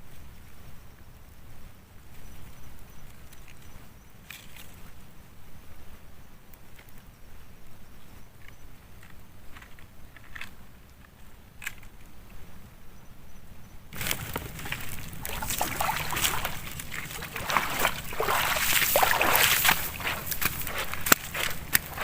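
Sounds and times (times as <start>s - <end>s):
water sloshing and splashing: 14.0s - 22.0s.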